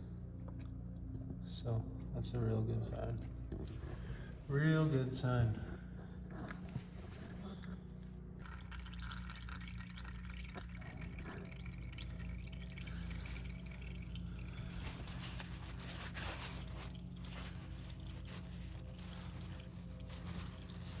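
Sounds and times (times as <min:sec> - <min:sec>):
steady low hum: 0:00.0 - 0:21.0
oil dripping into drain pan: 0:08.4 - 0:15.2.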